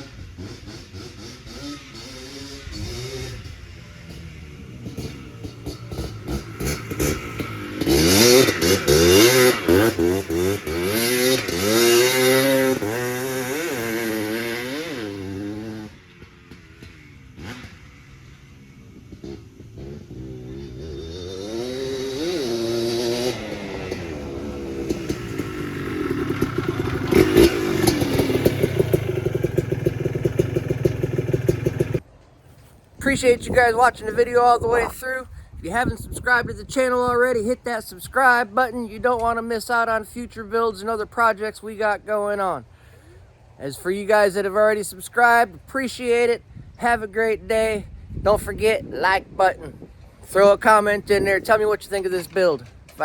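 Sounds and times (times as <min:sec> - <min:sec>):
two-stroke engine revving: 0:00.0 - 0:32.0.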